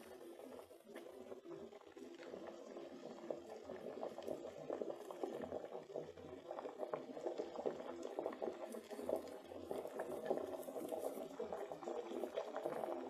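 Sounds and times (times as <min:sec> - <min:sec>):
soup bubbling in a kettle: 0:00.0 - 0:13.0.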